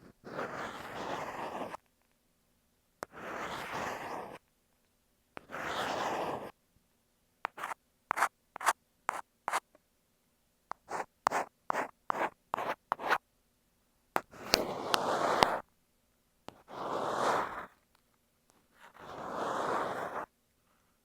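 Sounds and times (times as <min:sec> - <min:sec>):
ear pick scraping earphone microphone: 0:07.5 - 0:09.6, 0:14.2 - 0:15.6, 0:16.5 - 0:17.8, 0:18.8 - 0:20.3.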